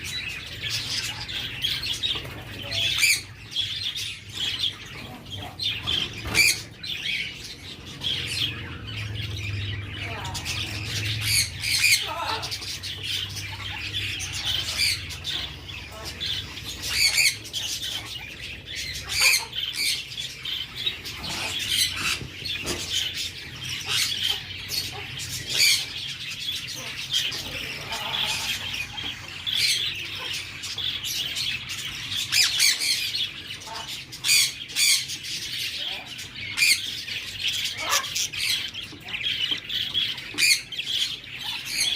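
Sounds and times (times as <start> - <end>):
parakeet chicks begging calls: 0.0 - 41.9.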